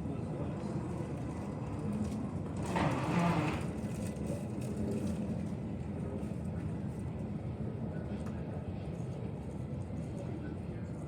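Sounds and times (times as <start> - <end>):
airport background rumble: 0.0 - 11.0.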